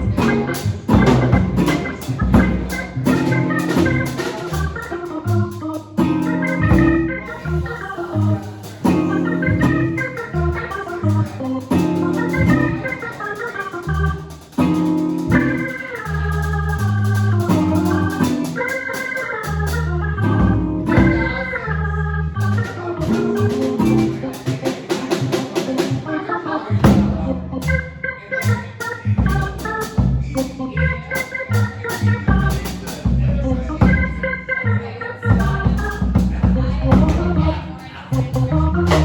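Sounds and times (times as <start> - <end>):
stepping bass line: 0.0 - 13.0, 13.9 - 18.8, 19.4 - 24.3, 26.7 - 39.0
steady quick ticking: 0.0 - 25.9
organ-toned keyboard runs: 0.0 - 39.0.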